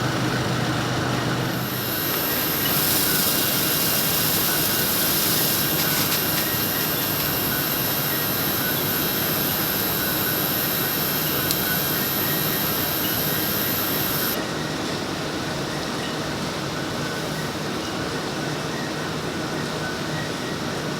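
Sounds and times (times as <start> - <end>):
polishing machinery running: 0.0 - 14.4
high hiss: 1.4 - 14.4.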